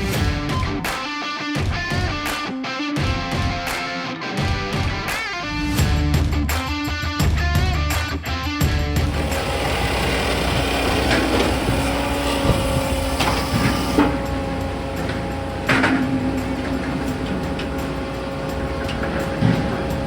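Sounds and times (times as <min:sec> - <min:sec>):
diesel engine and hydraulics humming: 0:09.0 - 0:20.0
logs and steel clanking: 0:09.0 - 0:20.0.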